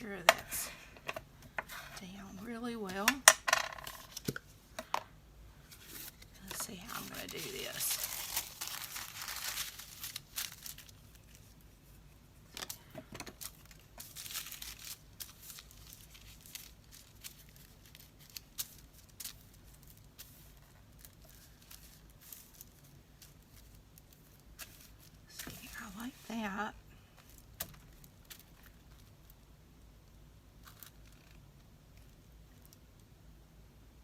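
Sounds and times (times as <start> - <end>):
paper rustling and crinkling: 5.7 - 11.8, 12.5 - 29.1.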